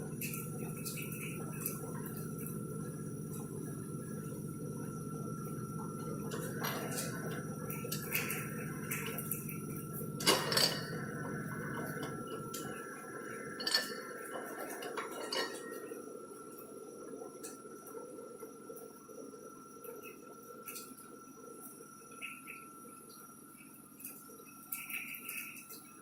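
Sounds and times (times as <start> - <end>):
thin steady whine: 0.0 - 26.0
metallic clinks and clanks: 13.6 - 14.2.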